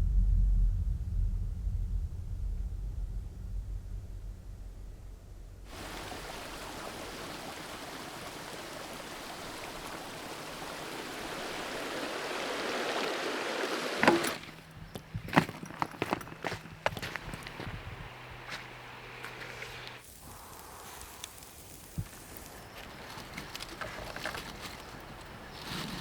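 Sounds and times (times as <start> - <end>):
low rumble: 0.0 - 5.7
rushing river water: 5.7 - 26.0.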